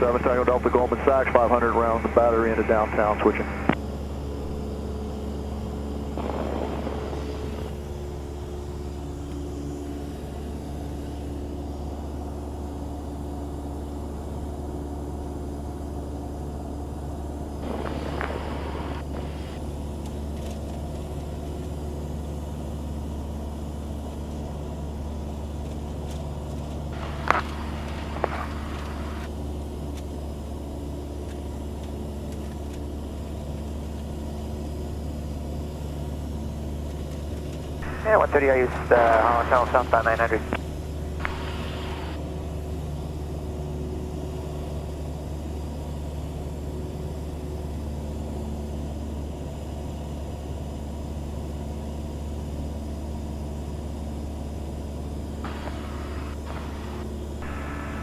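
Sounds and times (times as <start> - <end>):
small plane engine droning: 0.0 - 58.0.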